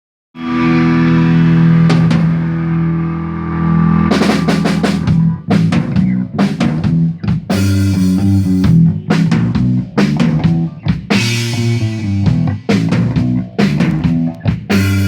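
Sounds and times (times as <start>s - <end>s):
guitar chord ringing: 0.4s - 5.6s
rock band playing: 0.4s - 15.0s
drum hit: 1.9s - 2.6s, 4.1s - 15.0s.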